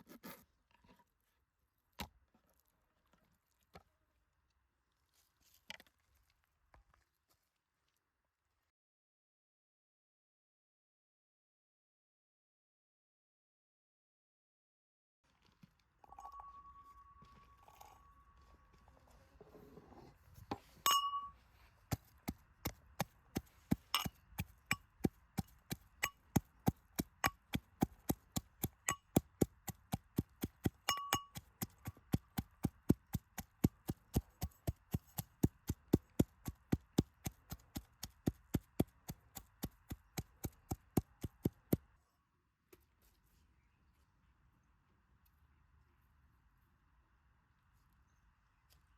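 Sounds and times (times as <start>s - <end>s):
ringing metallic clink: 16.1s - 18.6s, 20.8s - 21.4s, 30.9s - 31.4s
sharp evenly paced clinks: 20.9s - 21.4s, 30.8s - 31.5s.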